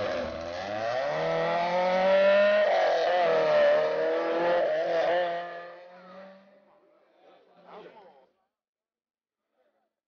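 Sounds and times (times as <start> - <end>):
rally car engine revving: 0.0 - 6.6.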